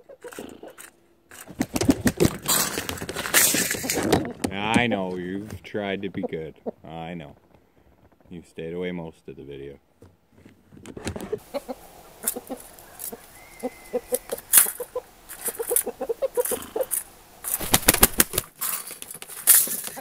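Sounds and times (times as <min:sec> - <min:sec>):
bird clucking: 0:00.0 - 0:05.2, 0:05.8 - 0:07.0, 0:11.1 - 0:20.0
sharp clicks and rustles: 0:00.0 - 0:05.7, 0:10.0 - 0:11.6, 0:14.2 - 0:20.0.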